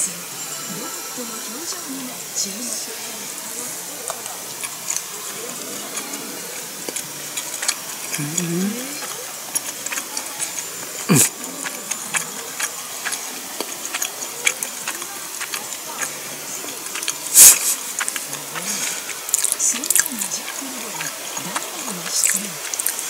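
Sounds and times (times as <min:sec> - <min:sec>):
person chewing: 0:03.7 - 0:23.0
rising vocal hum: 0:05.1 - 0:09.3, 0:10.8 - 0:13.6.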